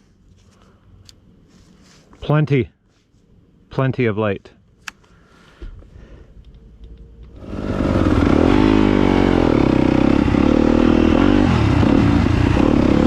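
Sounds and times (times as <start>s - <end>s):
dirt bike engine revving: 7.4s - 13.0s.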